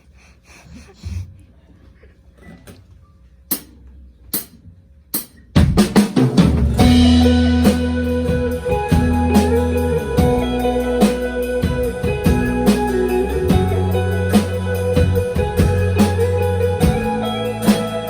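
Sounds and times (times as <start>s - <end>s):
rock band playing: 6.4s - 18.0s.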